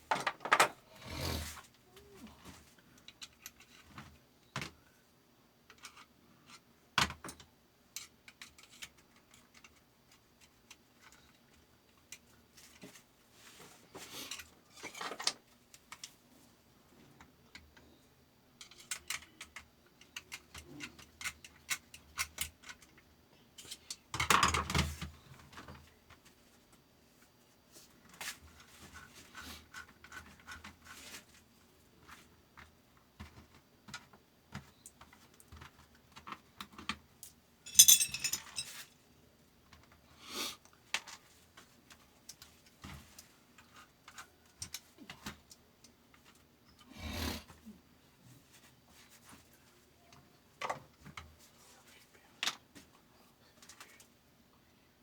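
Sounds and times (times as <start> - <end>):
metal parts clicking and clinking: 37.7 - 38.8.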